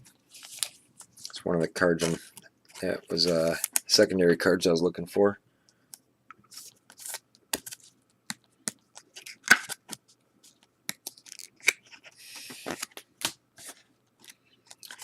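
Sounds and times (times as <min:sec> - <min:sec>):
card rustle: 0:00.2 - 0:04.0, 0:06.5 - 0:15.0.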